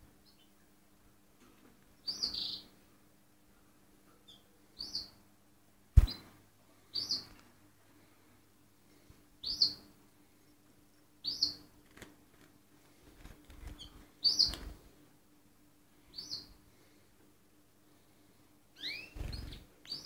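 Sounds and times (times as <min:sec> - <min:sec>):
canary chirping: 0:02.0 - 0:02.7, 0:04.2 - 0:05.2, 0:06.9 - 0:07.3, 0:09.4 - 0:09.9, 0:11.2 - 0:11.7, 0:13.6 - 0:14.8, 0:16.1 - 0:16.6, 0:18.8 - 0:20.0.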